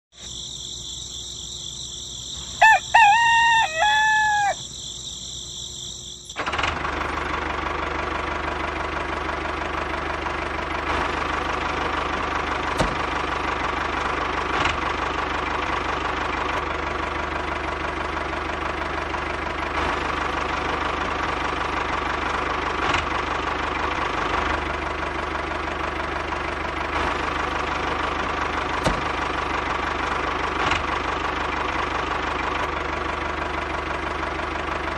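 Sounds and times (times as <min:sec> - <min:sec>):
small diesel engine chugging: 0:00.2 - 0:34.9
rooster crowing: 0:02.6 - 0:04.8.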